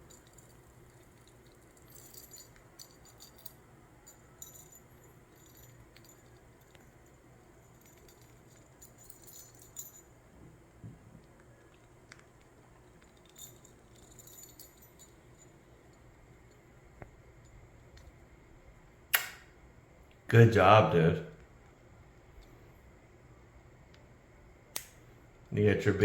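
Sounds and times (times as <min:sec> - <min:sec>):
small bell jingling in toy ball: 0:00.0 - 0:10.2, 0:13.0 - 0:15.6.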